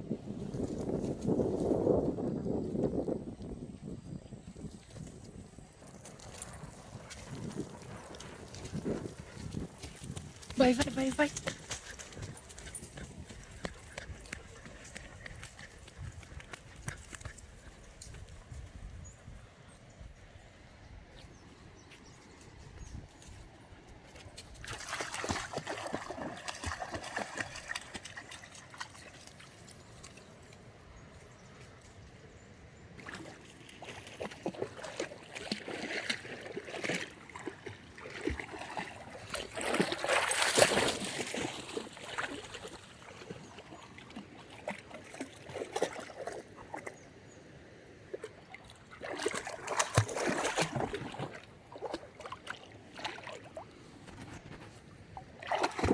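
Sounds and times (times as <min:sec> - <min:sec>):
water splashing and sloshing: 0:04.7 - 0:18.8, 0:23.1 - 0:30.6, 0:33.0 - 0:47.4, 0:48.0 - 0:55.9.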